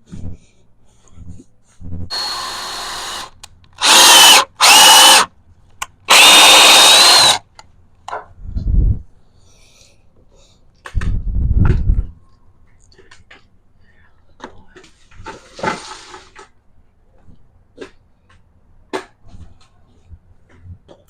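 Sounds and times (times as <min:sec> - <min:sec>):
power drill whining: 0:02.1 - 0:05.3, 0:06.1 - 0:07.4.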